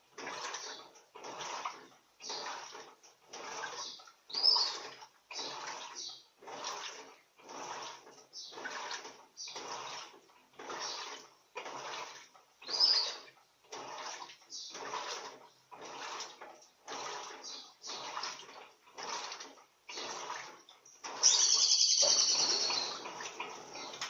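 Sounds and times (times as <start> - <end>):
washing machine sloshing: 0.0 - 24.0
high-pitched chirping: 21.3 - 22.9.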